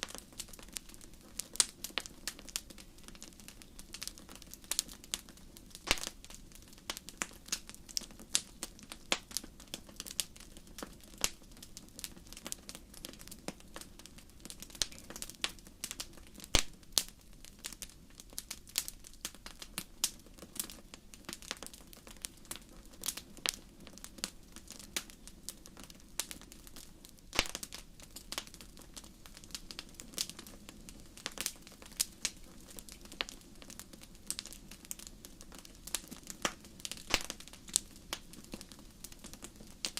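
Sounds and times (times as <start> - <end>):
crackling fire: 0.0 - 39.9.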